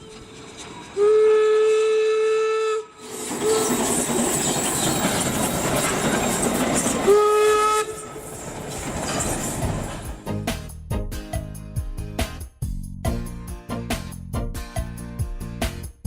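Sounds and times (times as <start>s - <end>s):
steam locomotive whistle: 0.0s - 5.0s, 6.8s - 8.5s
steam hissing: 2.9s - 10.2s.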